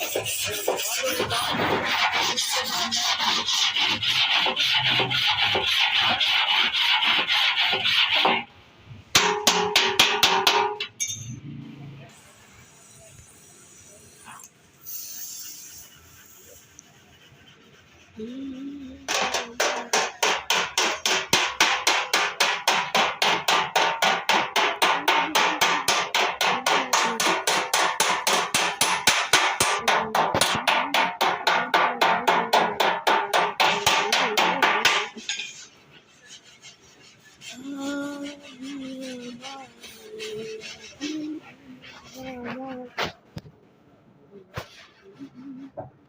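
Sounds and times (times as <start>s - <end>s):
hammer tapping sheet metal: 9.1s - 11.3s, 19.1s - 35.7s.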